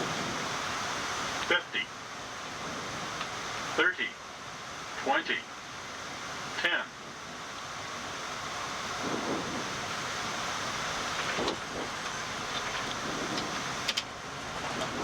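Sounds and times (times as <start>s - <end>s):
aircraft engine noise: 0.0s - 15.0s
airflow rushing: 5.7s - 15.0s.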